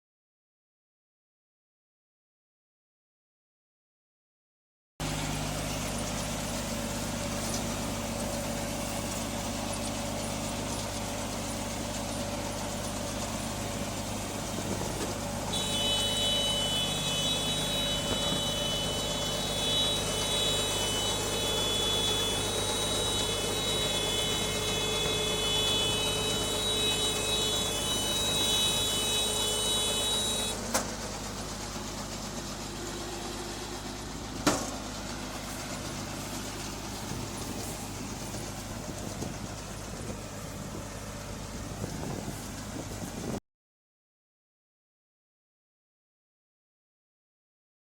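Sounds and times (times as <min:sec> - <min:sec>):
tractor engine running: 0:05.0 - 0:43.4.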